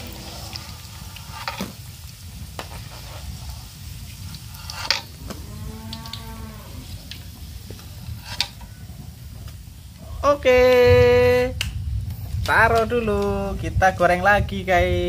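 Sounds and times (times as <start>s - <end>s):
oil sizzling in a pan: 0.0s - 11.2s.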